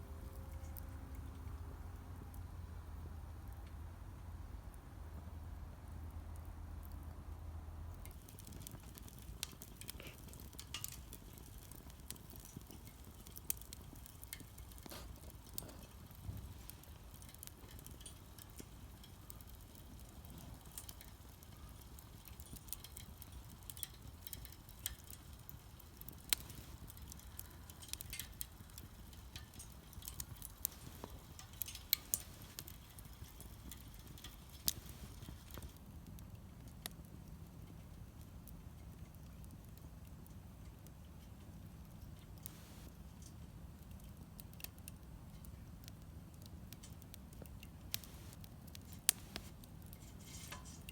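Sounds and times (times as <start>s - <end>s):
wood fire crackling: 0.0s - 50.9s
sharp pops of fire: 7.9s - 41.0s, 41.8s - 50.9s.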